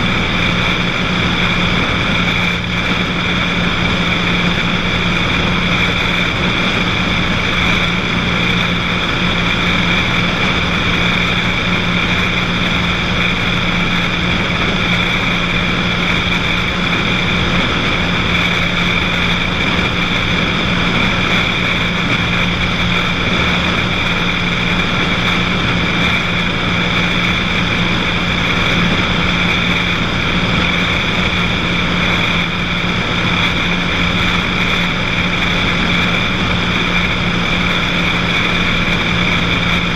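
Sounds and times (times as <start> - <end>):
propeller plane engine drone: 0.0 - 39.9.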